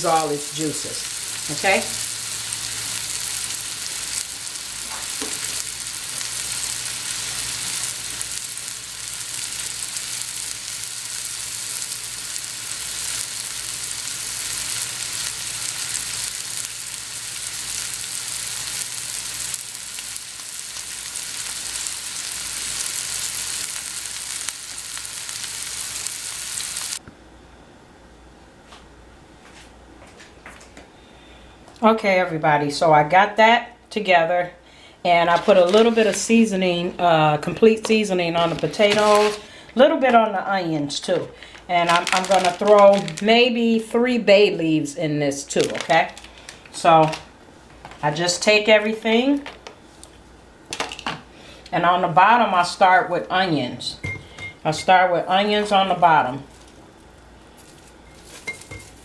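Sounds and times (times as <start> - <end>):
meat sizzling in a skillet: 0.0 - 27.0.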